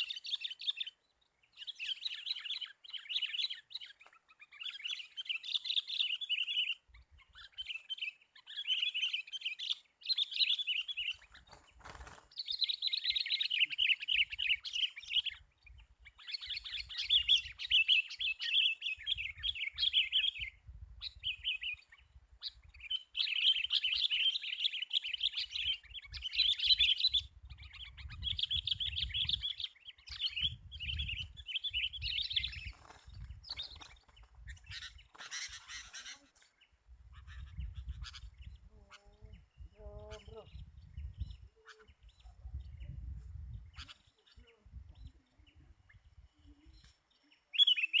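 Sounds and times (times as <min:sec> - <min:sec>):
bird chattering calls: 0:33.5 - 0:36.4.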